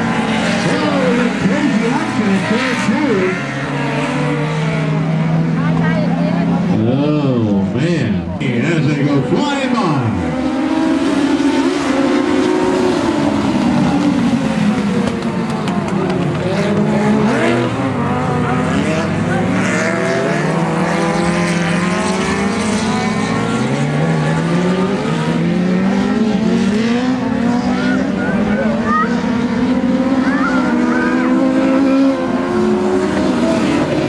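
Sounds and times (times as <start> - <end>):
race car engines passing: 0.0 - 34.0.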